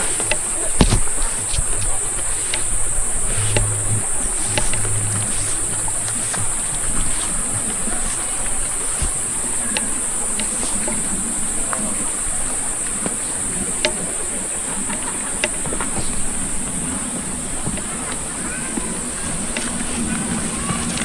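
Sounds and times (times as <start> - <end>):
insects chirring: 0.8 - 11.6.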